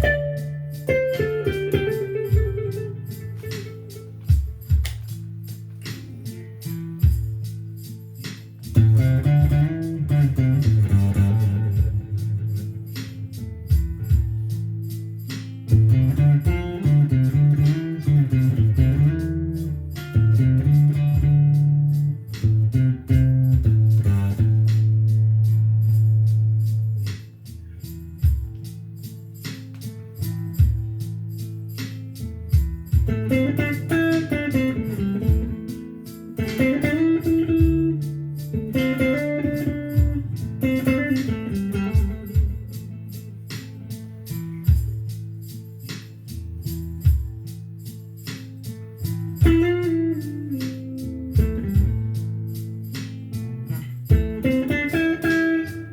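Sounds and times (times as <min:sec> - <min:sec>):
drum beat: 0:00.0 - 0:14.7, 0:15.3 - 0:21.6, 0:22.3 - 0:25.0, 0:28.2 - 0:29.9, 0:30.5 - 0:31.2, 0:31.8 - 0:47.6, 0:49.4 - 0:55.9
blues guitar playing: 0:00.0 - 0:55.9
bass line: 0:15.7 - 0:28.9.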